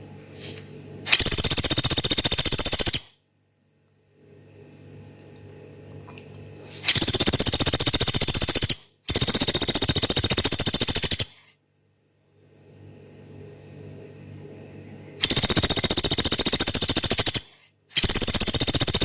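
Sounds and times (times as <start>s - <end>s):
woodpecker rattling calls: 1.1s - 3.1s, 6.9s - 11.4s, 15.2s - 19.0s.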